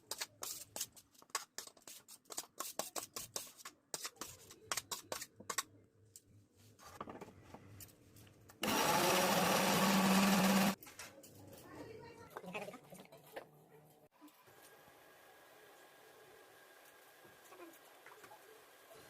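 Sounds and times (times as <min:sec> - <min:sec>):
electric mixer grinder running: 0:08.6 - 0:10.8.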